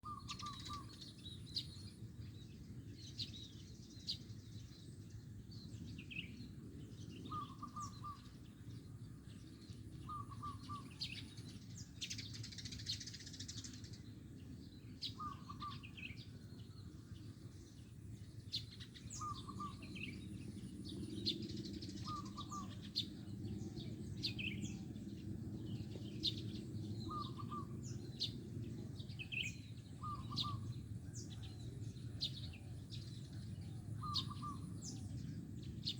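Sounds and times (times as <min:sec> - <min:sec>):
small birds chirping: 0:00.0 - 0:35.9
dove trilled cooing: 0:15.2 - 0:15.9, 0:22.0 - 0:23.3, 0:27.0 - 0:28.0, 0:30.0 - 0:30.7, 0:33.8 - 0:35.1.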